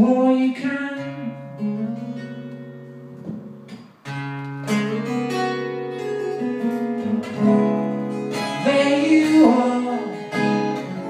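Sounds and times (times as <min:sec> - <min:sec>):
acoustic guitar strummed chords: 0:00.0 - 0:11.0.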